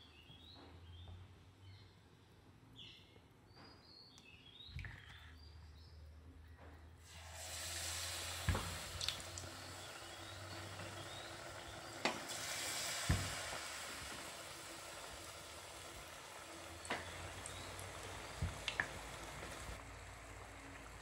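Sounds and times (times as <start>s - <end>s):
patty sizzling in hot oil: 7.0s - 21.0s.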